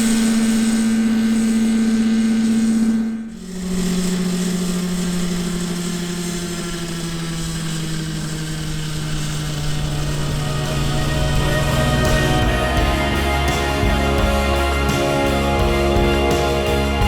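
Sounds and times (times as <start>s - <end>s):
model helicopter engine running: 0.0s - 17.0s.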